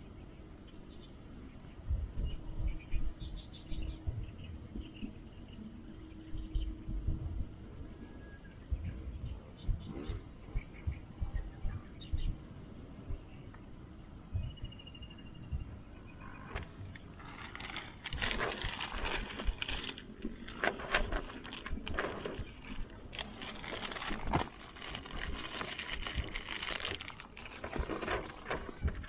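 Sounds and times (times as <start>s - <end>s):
rustling: 17.2s - 29.0s
light metallic clinks: 20.6s - 28.9s.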